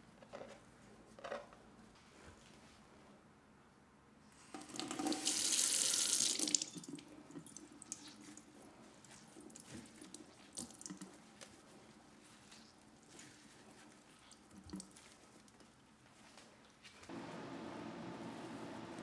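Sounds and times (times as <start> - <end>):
kitchen tap running: 4.5 - 8.2
water splashing into sink: 4.6 - 8.4.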